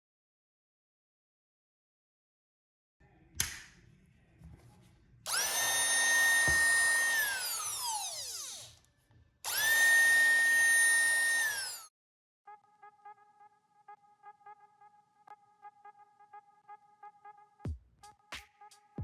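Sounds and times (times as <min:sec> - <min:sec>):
electric clipper motor whining: 0:05.3 - 0:08.8, 0:09.5 - 0:11.9.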